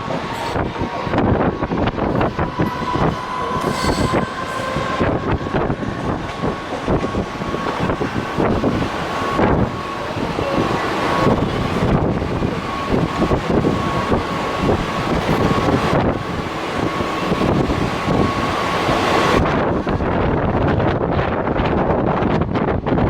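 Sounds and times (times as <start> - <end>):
steady high whine: 0.0 - 21.9
train rattling on rails: 0.0 - 23.0.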